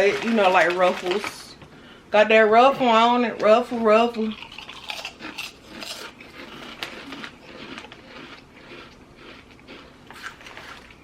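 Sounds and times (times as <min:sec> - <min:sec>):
potato chips crunching: 0:00.0 - 0:01.4, 0:04.2 - 0:11.0.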